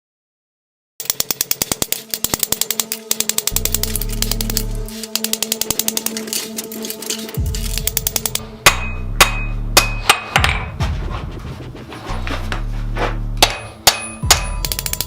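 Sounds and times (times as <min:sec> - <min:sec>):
hammer striking steel anvil: 0:01.0 - 0:10.8, 0:13.4 - 0:15.0.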